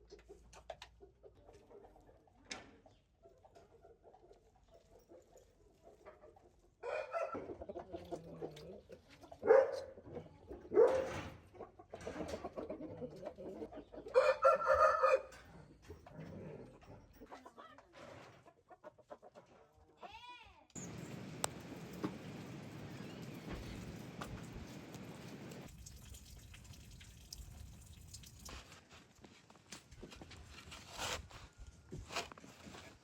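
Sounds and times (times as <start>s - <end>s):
chickens clucking: 0.0s - 19.9s, 20.8s - 25.7s
rooster crowing: 6.8s - 7.4s, 14.1s - 15.4s.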